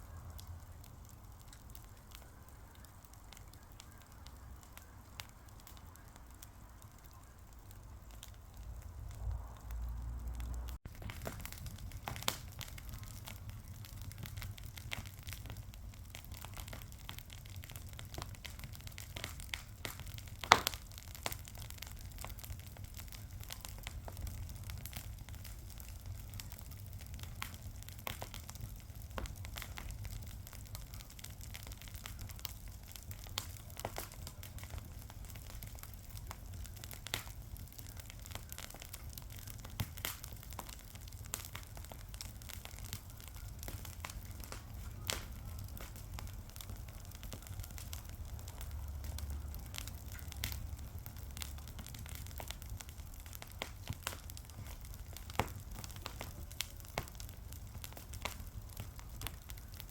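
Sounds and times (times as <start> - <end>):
fire crackling and popping: 0.0 - 59.9
low steady rumble: 8.5 - 12.1.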